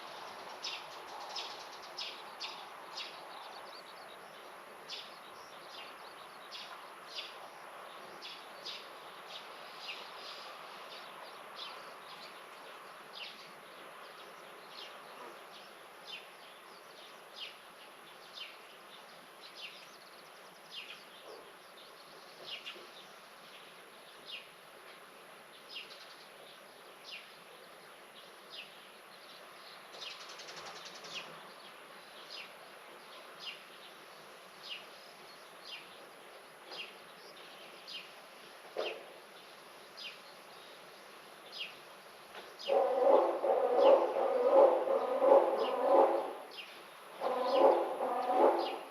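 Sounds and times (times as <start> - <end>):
bird chirping: 41.4 - 48.9.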